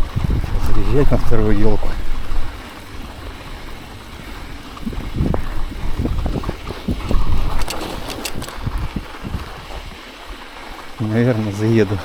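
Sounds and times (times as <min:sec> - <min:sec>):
wind buffeting microphone: 0:00.0 - 0:12.0
sharp clicks: 0:07.4 - 0:09.0.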